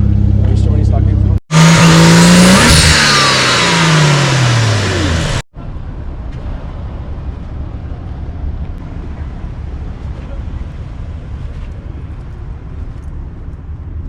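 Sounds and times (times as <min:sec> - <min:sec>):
low engine rumble: 0:00.0 - 0:01.4, 0:03.4 - 0:14.0
car engine revving: 0:00.0 - 0:05.5.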